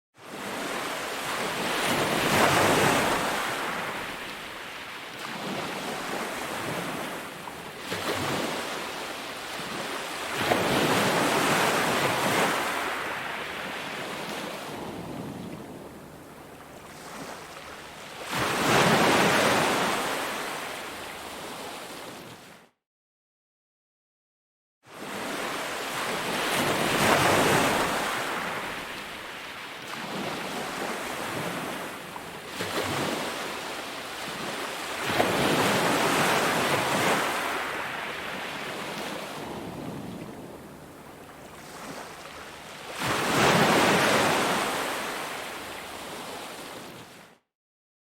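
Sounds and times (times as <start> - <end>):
ocean waves crashing: 0.4 - 21.0, 25.0 - 47.0
wind on microphone: 14.6 - 17.4, 38.7 - 42.1.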